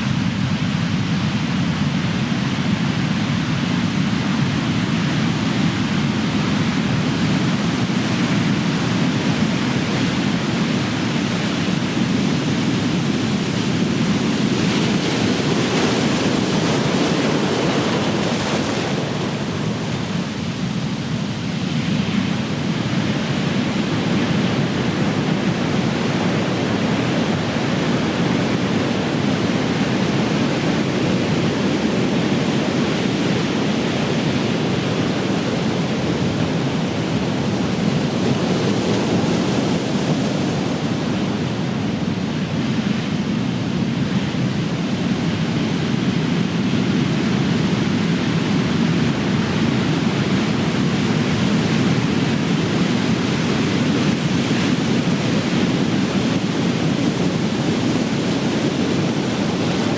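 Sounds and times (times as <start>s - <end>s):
ocean waves crashing on shore: 0.0s - 59.9s.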